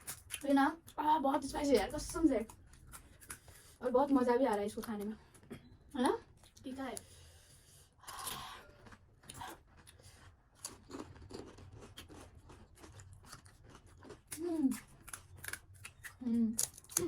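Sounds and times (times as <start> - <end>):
crisp food crunching and chewing: 0.0 - 1.0, 1.8 - 3.7, 8.1 - 17.0.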